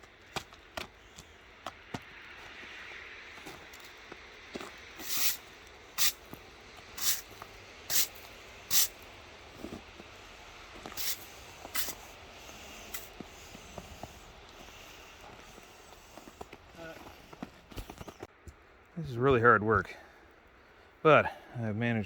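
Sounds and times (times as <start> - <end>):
shovel scraping ice: 5.0 - 6.2, 7.0 - 9.0, 10.8 - 14.3.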